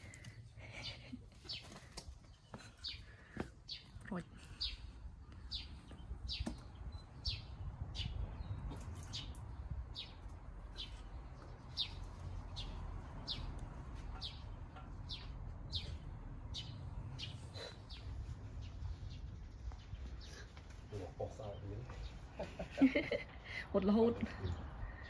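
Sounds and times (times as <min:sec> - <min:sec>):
bird chirping: 0:00.8 - 0:23.1.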